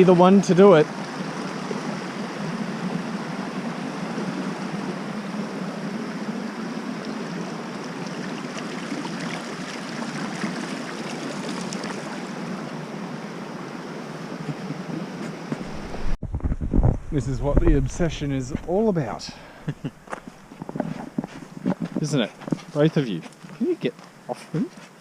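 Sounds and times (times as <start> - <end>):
stream rushing over a cascade: 7.0 - 12.9.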